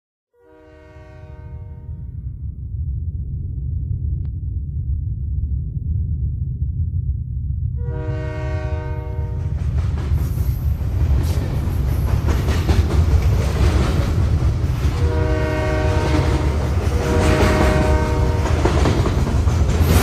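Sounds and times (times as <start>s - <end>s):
train horn blast: 0.4s - 2.2s, 7.8s - 9.6s, 15.0s - 18.6s
passing train rumble and clatter: 7.7s - 20.0s.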